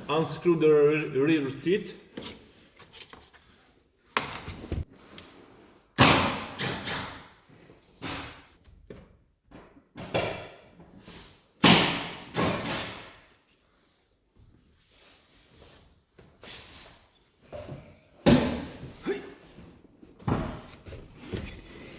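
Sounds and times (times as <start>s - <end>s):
thumps and knocks of tools: 4.2s - 4.9s, 8.7s - 10.5s.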